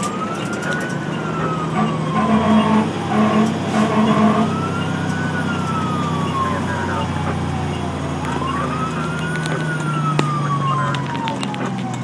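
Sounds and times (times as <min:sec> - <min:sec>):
fire engine wail siren: 0:00.0 - 0:12.0
truck engine: 0:00.0 - 0:12.0
short horn blasts: 0:01.8 - 0:04.5.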